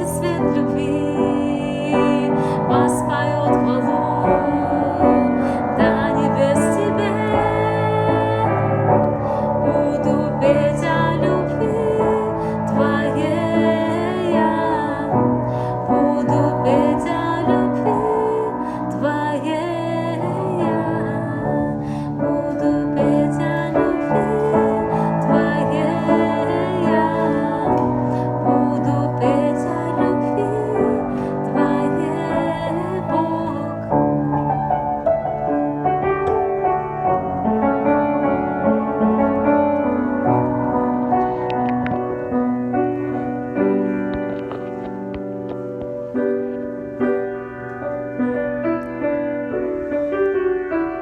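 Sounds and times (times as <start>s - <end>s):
piano playing: 0.0s - 51.0s
keyboard playing: 34.3s - 49.9s.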